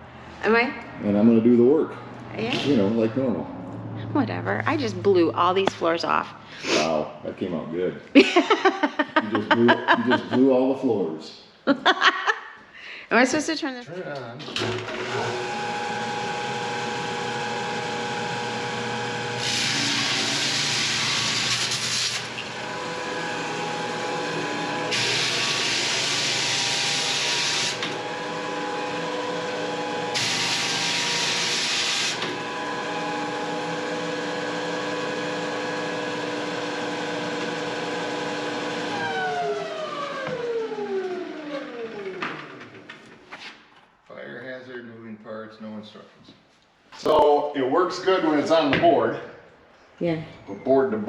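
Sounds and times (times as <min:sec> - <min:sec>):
motor winding down: 0:14.5 - 0:42.8
floor sander motor hum: 0:14.6 - 0:42.9.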